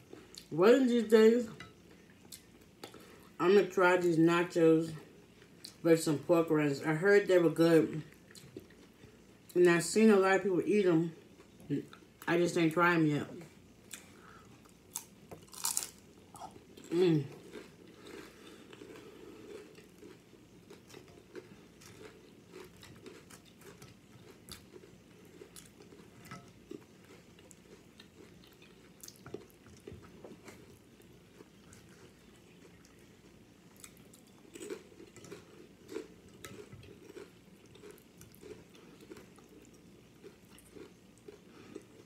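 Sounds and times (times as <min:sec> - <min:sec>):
chips crunching: 0:14.9 - 0:26.1, 0:33.8 - 0:39.4.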